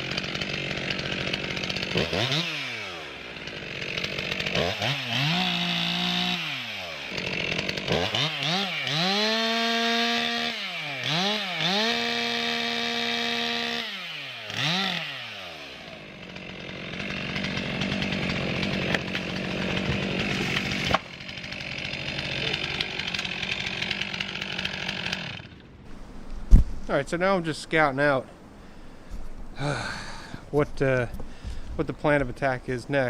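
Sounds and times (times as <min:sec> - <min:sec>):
chainsaw revving: 0:00.0 - 0:26.1.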